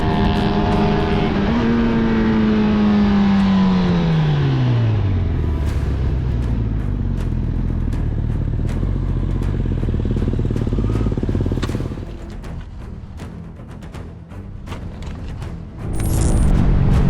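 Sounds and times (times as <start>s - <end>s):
motorcycle engine running: 0.0s - 13.3s
music with steady beat: 3.2s - 17.0s.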